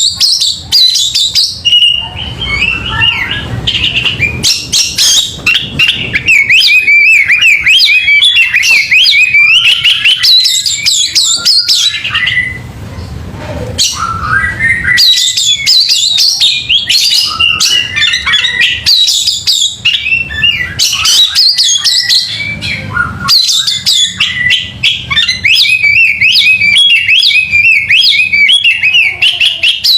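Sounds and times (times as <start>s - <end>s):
bird singing warbling phrases: 0.0s - 29.9s.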